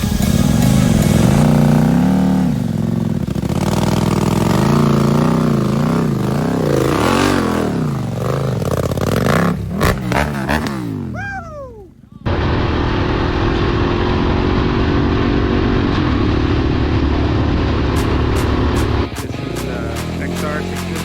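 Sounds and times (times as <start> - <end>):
dirt bike engine revving: 0.0 - 11.7, 17.9 - 21.0.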